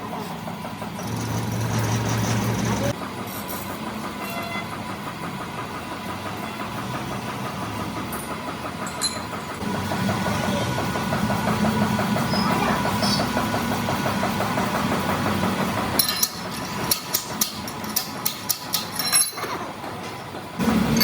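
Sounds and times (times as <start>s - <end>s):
engine running steadily: 0.0s - 21.0s
sharp metal clinks and taps: 8.1s - 9.3s, 16.0s - 19.6s.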